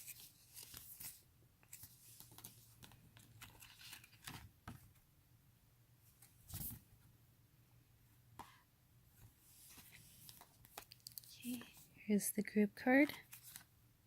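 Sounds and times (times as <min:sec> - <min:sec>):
paper cards rustling: 0:00.0 - 0:04.8, 0:09.5 - 0:11.9, 0:12.9 - 0:13.7.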